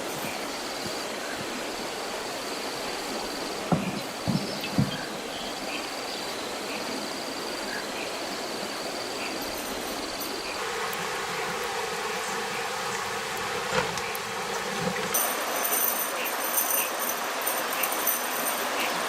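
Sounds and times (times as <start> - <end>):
insects trilling: 0.0 - 19.0
short knocks: 3.7 - 5.1.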